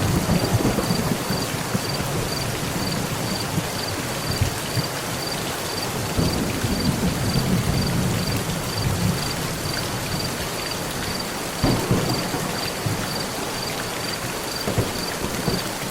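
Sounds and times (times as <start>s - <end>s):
thunder crack: 0.0s - 3.4s, 6.2s - 9.4s, 11.6s - 15.9s
rolling thunder: 0.0s - 4.9s, 6.0s - 10.5s, 11.6s - 15.9s
heavy rain on a metal roof: 0.0s - 15.9s.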